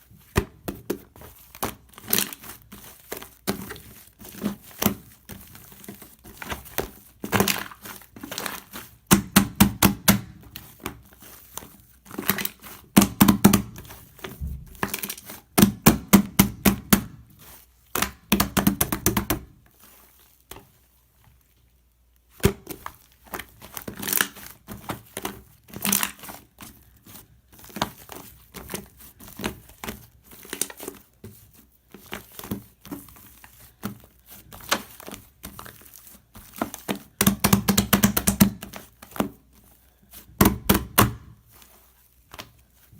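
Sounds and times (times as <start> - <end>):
slime crackling and popping: 1.0 - 11.0, 22.2 - 26.6.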